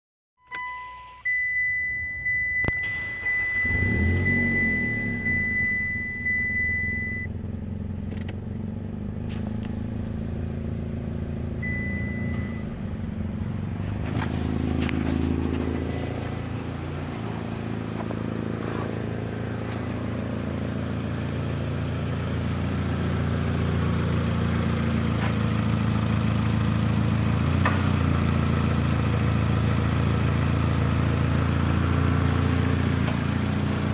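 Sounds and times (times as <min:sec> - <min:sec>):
high beeping tone: 0:00.5 - 0:07.3
car engine running: 0:02.3 - 0:33.9.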